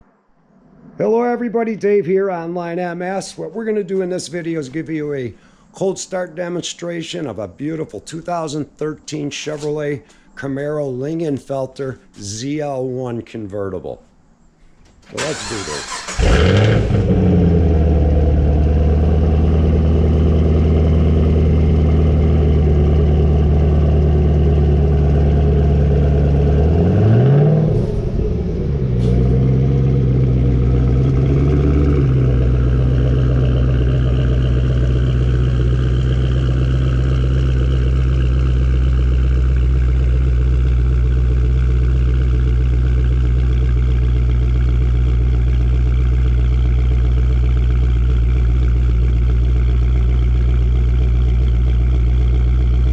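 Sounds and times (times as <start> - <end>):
car engine idling and revving: 15.2 - 52.9.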